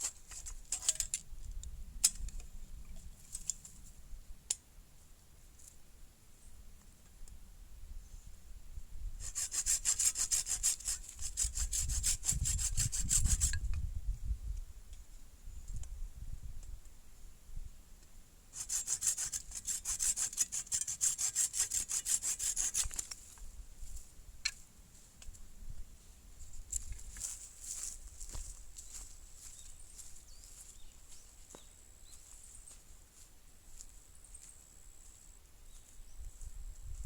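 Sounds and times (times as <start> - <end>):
hand saw cutting wood: 9.2 - 13.6, 18.6 - 23.2.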